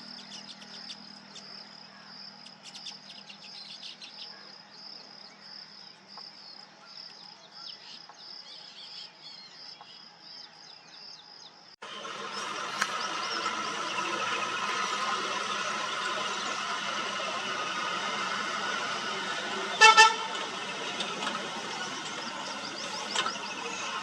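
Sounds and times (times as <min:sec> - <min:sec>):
loud noisy sound: 0:11.8 - 0:24.0.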